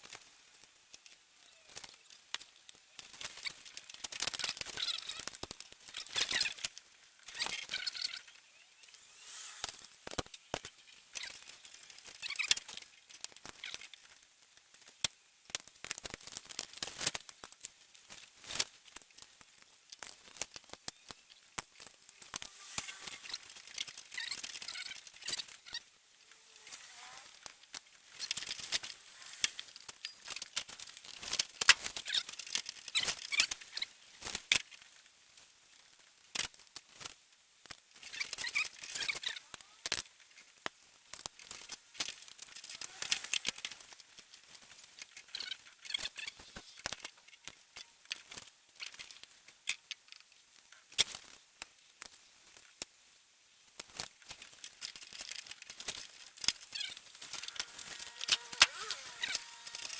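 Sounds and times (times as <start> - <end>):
gritty scraping and squeaking: 7.2 - 11.4, 22.2 - 30.6, 42.4 - 43.9, 56.0 - 59.9.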